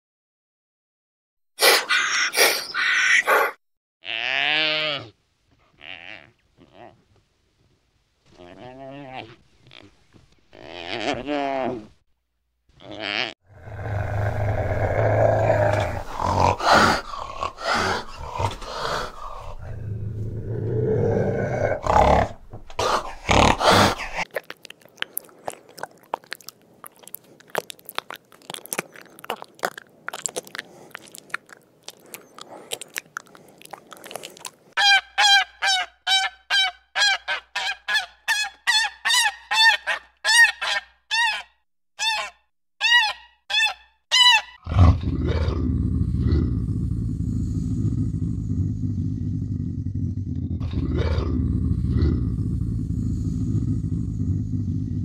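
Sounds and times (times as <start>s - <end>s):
low rough animal sounds: 12.8s - 24.2s, 44.7s - 55.0s.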